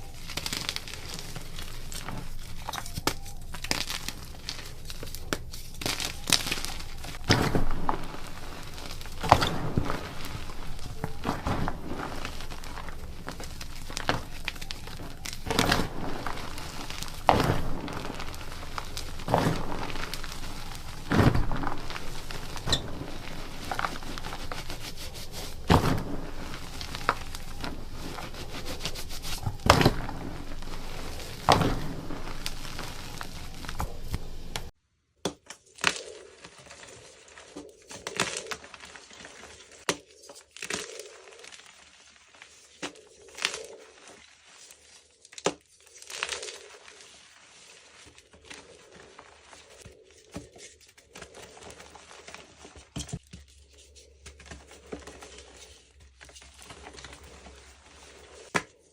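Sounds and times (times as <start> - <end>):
sharp crunchy cracks: 0.0 - 34.7
chalk crumbling by hand: 0.0 - 34.8, 35.7 - 58.9.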